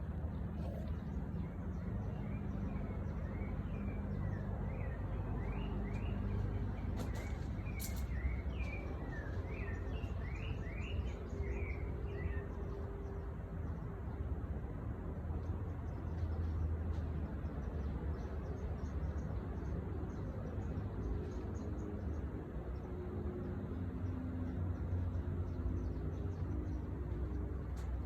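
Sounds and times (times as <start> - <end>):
songbird chirping: 0.3 - 13.1.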